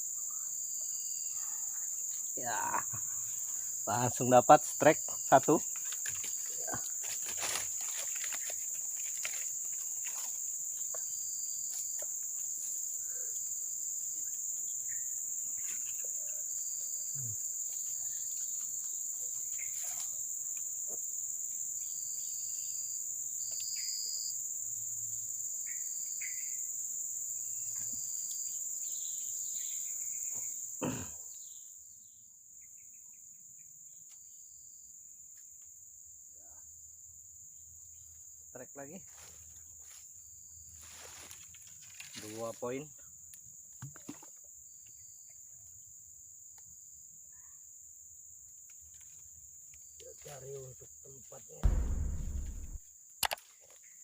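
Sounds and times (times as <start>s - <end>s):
high-pitched insect chorus: 0.0s - 52.7s
sharp knock: 51.6s - 52.8s.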